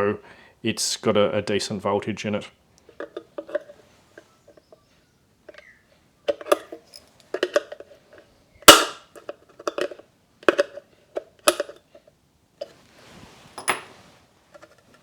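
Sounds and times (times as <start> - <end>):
plastic casing clicks and knocks: 2.9 - 3.7, 6.3 - 7.9, 8.6 - 11.8
sharp loud crack: 8.7 - 9.0.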